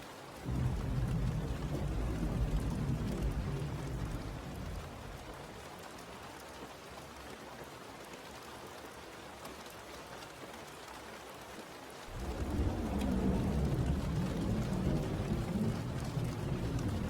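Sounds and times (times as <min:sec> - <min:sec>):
steady rain: 0:00.0 - 0:17.0
thunder rumbling: 0:00.4 - 0:05.7, 0:12.1 - 0:17.0.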